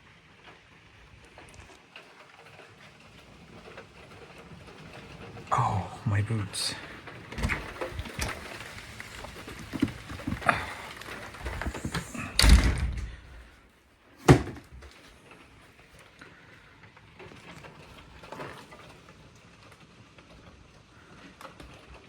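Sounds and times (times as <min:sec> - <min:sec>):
knocks and rustles: 0:06.7 - 0:13.6, 0:14.2 - 0:15.1
door shutting with heavy thud: 0:07.3 - 0:13.5, 0:14.2 - 0:14.9.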